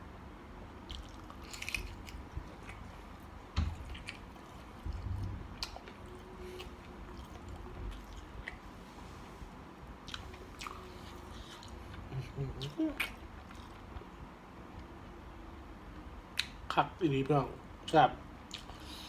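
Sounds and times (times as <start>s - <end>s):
wet chewing: 0.8s - 8.6s, 10.0s - 14.1s, 18.5s - 19.0s
dull thump: 3.5s - 3.8s.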